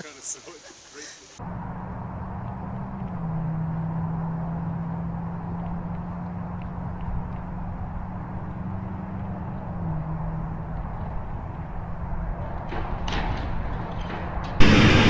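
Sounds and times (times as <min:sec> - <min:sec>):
noisy rumble: 0:09.5 - 0:15.0.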